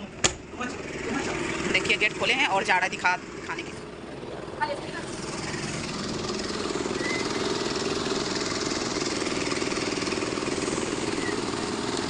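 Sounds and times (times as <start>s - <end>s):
machinery engine chugging: 0.0s - 12.0s.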